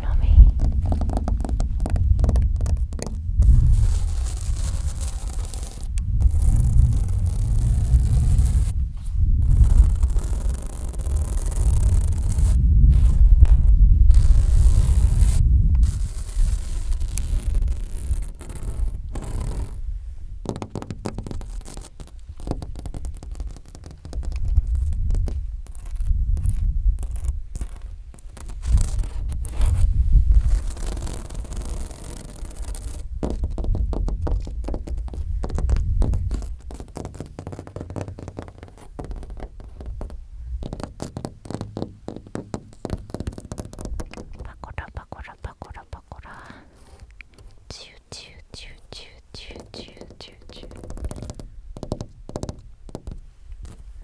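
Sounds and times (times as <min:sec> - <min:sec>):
low uneven rumble: 0:00.0 - 0:17.2
scratching and tapping on microphone: 0:00.0 - 0:54.0.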